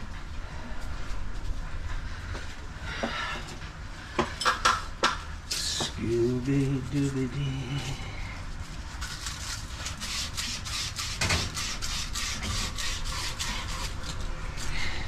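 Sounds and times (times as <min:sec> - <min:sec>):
scrubbing copper pipe: 0:08.7 - 0:14.9.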